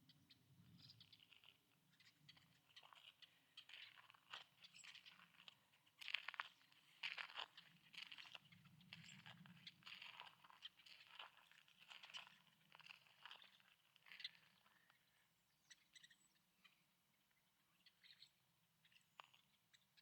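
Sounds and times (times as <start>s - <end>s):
footsteps crunching on ground: 2.9s - 14.7s.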